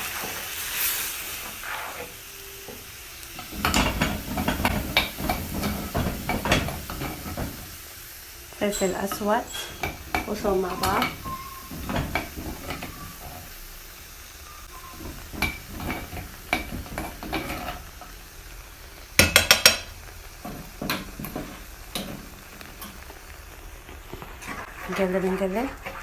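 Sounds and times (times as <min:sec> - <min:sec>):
metal spoon scraping frying pan: 0:00.0 - 0:02.8, 0:03.4 - 0:07.7, 0:08.6 - 0:13.5, 0:14.8 - 0:18.1, 0:24.2 - 0:26.0
sauce sizzling: 0:00.0 - 0:26.0.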